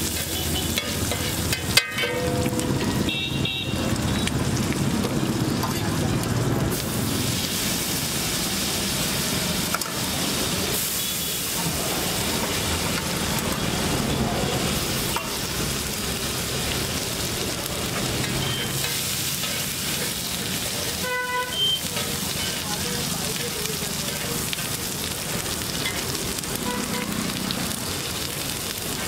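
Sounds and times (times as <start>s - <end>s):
metal spatula scraping iron: 0.0s - 3.0s
egg sizzling in hot oil: 0.0s - 29.0s.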